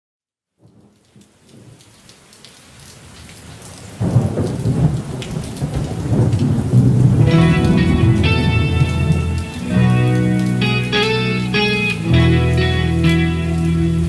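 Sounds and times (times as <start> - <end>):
rain falling: 0.6 - 14.0
low thunder rumble: 4.0 - 9.5.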